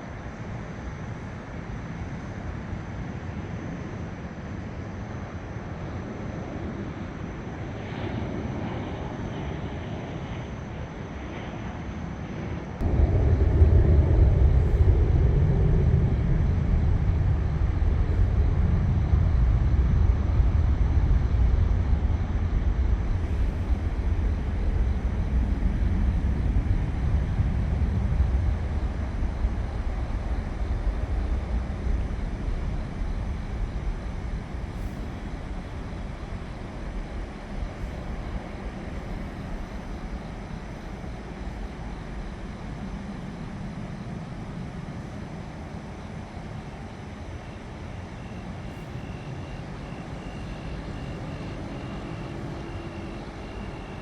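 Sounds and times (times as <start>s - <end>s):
airplane passing: 6.5s - 44.2s.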